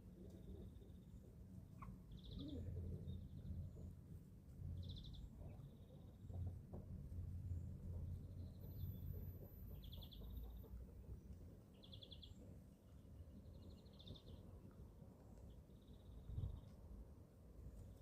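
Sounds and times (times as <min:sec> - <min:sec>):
faint low rumble: 0:00.0 - 0:18.0
young chickens chirping: 0:08.6 - 0:10.8.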